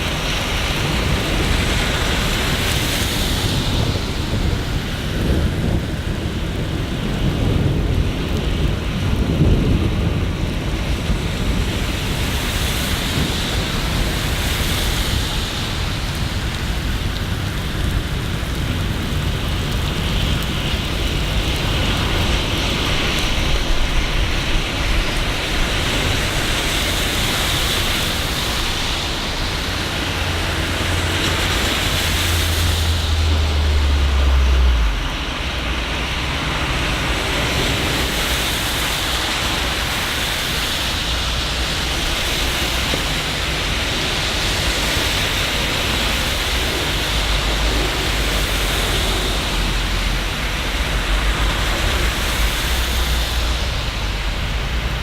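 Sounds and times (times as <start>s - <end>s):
rain hiss: 0.0s - 55.0s
deep low rumble: 29.0s - 37.3s.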